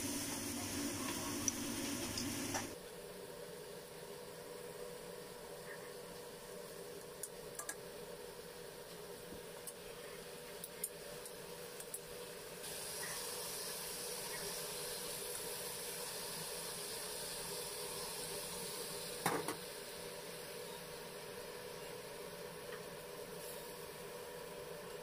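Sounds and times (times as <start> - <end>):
chicken wings sizzling in oil: 0.0 - 2.8, 10.5 - 25.0.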